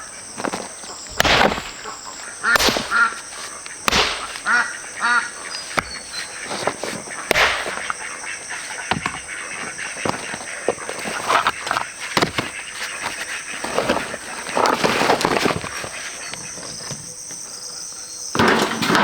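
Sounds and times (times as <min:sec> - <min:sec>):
sharp knocks or thuds: 0:01.1 - 0:04.8, 0:05.7 - 0:08.0.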